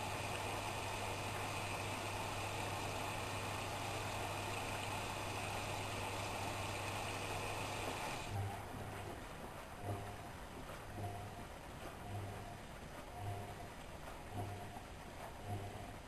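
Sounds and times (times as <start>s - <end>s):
water rushing into washing machine: 0.0s - 8.4s
low hum: 0.0s - 16.0s.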